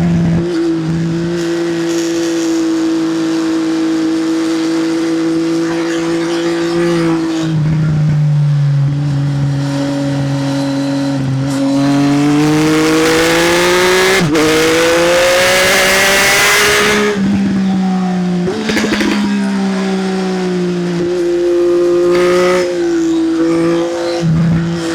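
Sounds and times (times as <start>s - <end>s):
motorcycle engine accelerating: 0.0s - 24.9s
exhaust pops crackling: 18.5s - 19.9s.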